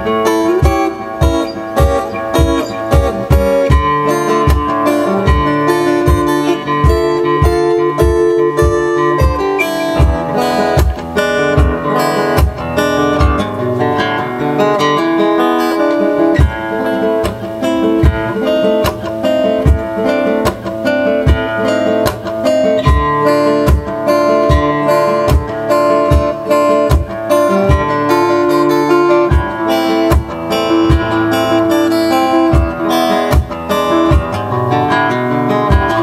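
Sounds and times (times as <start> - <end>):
acoustic guitar strumming: 0.0 - 36.0
suitcase kick drum: 0.6 - 5.5, 6.1 - 13.4, 19.7 - 20.6, 26.1 - 28.0, 29.3 - 31.3.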